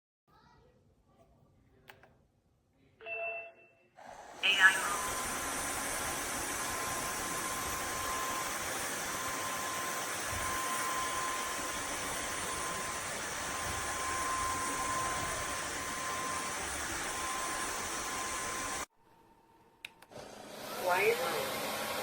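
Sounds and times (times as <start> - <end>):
vacuum mop motor whooshing: 4.0 - 18.9, 20.1 - 22.0
faint high whine: 4.4 - 19.9.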